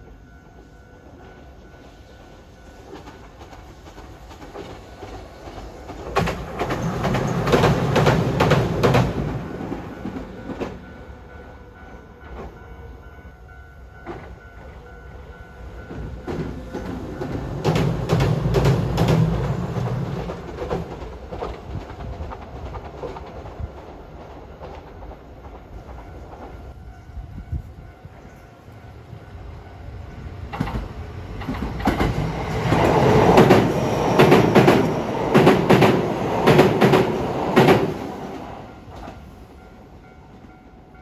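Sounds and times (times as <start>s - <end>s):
low rumble of passing rail vehicles: 0.0s - 41.0s
train wheels clacking over rail joints: 2.8s - 10.9s, 15.8s - 26.8s, 30.5s - 39.3s.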